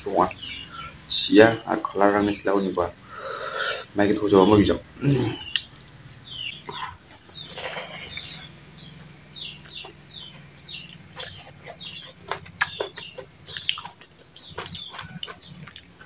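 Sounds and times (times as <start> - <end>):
bird chirps: 0.0 - 1.8, 5.2 - 16.0
wet chewing and lip-smacking: 9.0 - 16.0.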